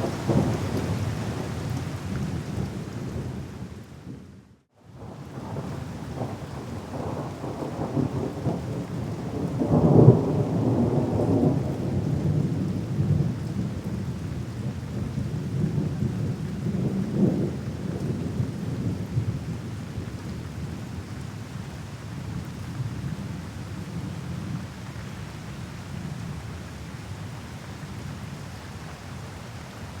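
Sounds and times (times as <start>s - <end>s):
low thunder: 5.0s - 20.1s.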